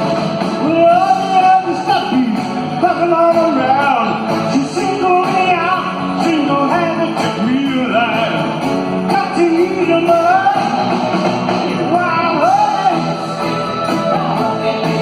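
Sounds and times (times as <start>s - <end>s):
rock and roll band playing: 0.0s - 15.0s
people singing: 9.4s - 15.0s.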